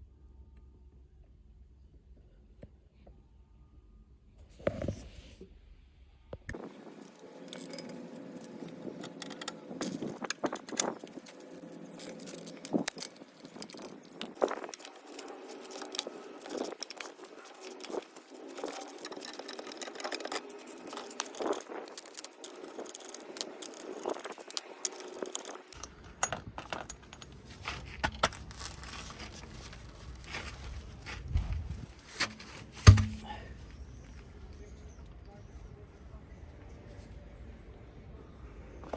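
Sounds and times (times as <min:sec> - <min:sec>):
metal scraping: 0:06.6 - 0:27.3
metal tools clinking and rattling: 0:06.6 - 0:27.5
low hum: 0:32.2 - 0:33.6.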